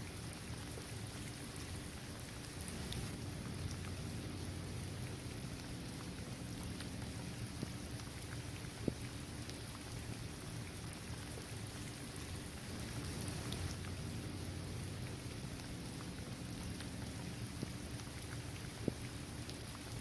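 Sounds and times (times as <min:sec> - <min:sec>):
rain on a hard court and trees: 0:00.0 - 0:20.0
raindrops ticking: 0:00.0 - 0:20.0.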